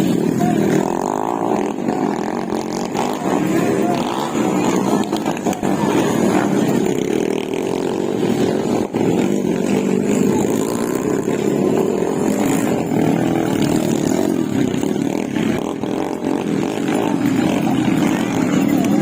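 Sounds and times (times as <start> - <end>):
motorcycle engines running: 0.0 - 19.0.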